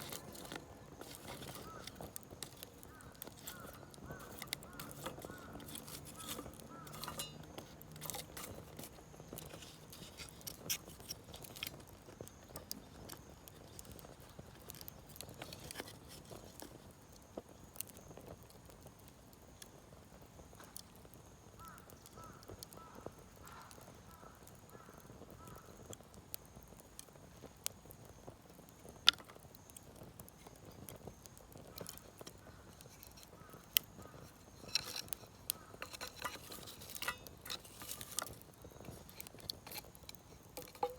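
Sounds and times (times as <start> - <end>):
sharp pops from fire: 0.0 - 40.9
wood fire crackling: 0.0 - 40.9.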